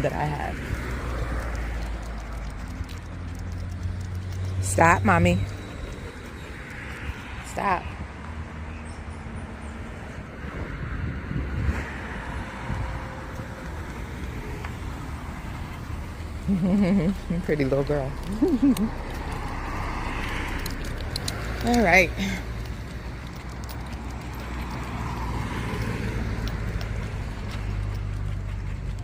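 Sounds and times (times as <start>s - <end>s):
car passing: 0.0s - 29.0s
footsteps on pavement: 0.3s - 7.4s, 12.4s - 16.4s, 18.1s - 29.0s.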